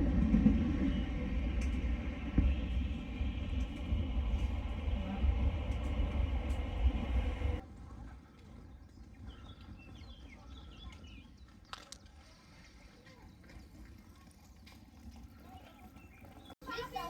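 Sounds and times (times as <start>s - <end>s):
train rumbling: 0.0s - 7.8s.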